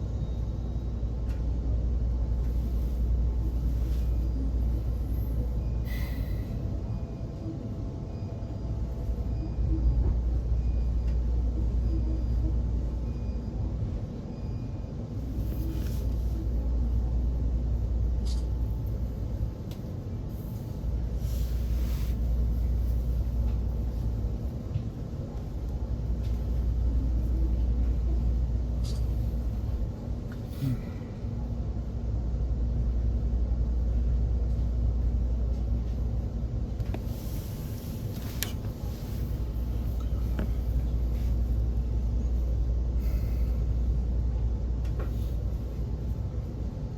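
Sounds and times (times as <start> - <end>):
train rumble inside carriage: 0.0 - 46.9.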